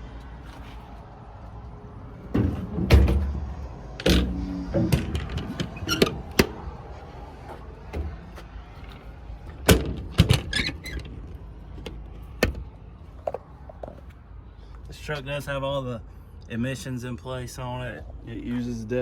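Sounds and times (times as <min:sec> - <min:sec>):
metal compartment doors clunking: 0:02.2 - 0:06.8, 0:07.8 - 0:12.7.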